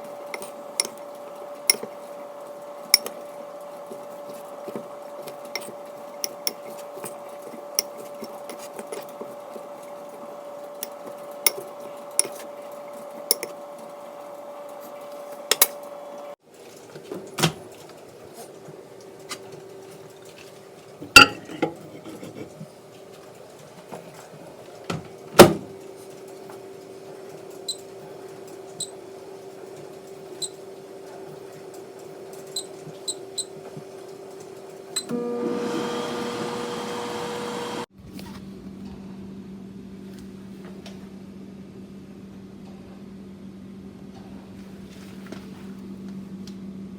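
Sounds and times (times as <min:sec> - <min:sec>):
dishes clinking and clanking: 0:21.0 - 0:22.6.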